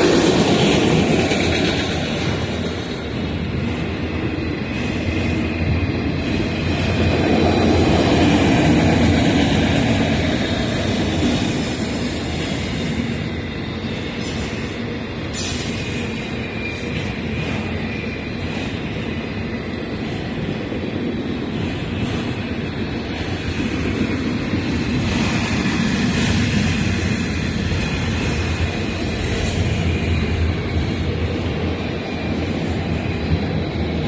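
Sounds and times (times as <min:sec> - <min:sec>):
freight train rolling past: 0:00.0 - 0:34.0
steel wheels rumbling on rail: 0:00.0 - 0:34.0.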